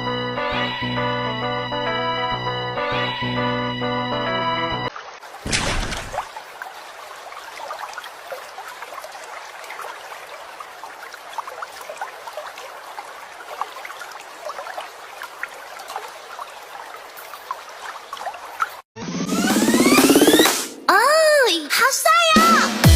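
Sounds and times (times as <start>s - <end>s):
water trickling and babbling: 4.9s - 18.9s
water bubbling plops: 5.4s - 18.8s.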